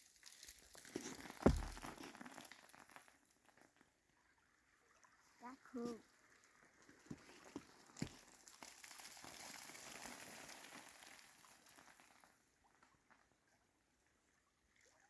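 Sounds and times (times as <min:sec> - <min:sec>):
ice falling through branches: 0:00.3 - 0:02.6.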